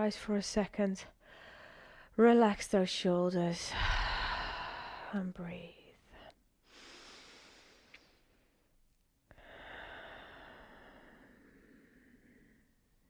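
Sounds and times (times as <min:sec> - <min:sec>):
person breathing slowly: 0:01.2 - 0:02.1, 0:03.7 - 0:05.2, 0:06.1 - 0:08.6, 0:09.3 - 0:12.9.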